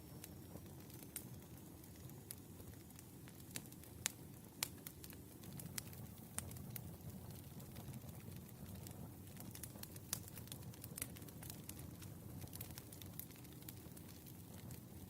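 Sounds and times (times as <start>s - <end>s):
firewood popping and crackling: 0.0s - 15.0s
low rumble of fire: 0.0s - 15.0s.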